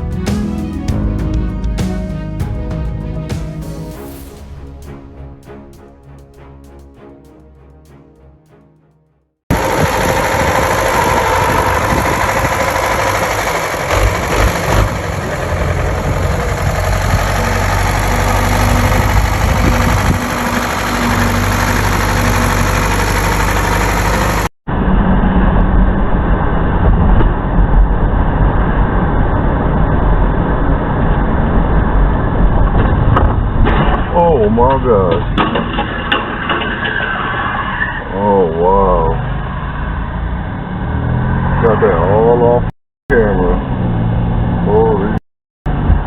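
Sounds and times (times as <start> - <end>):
heavy vehicle engine running: 9.5 - 34.0
road noise: 9.5 - 46.0.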